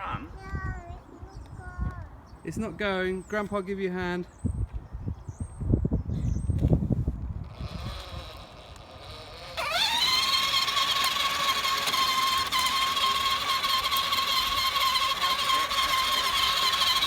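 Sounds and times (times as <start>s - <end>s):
toy motorcycle motor whine: 7.3s - 17.0s.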